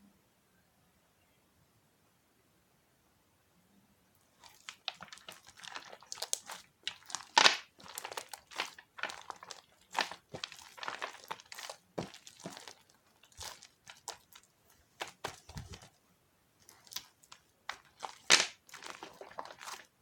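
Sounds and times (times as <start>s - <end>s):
slime squished by hand: 4.3s - 15.9s, 16.6s - 20.0s.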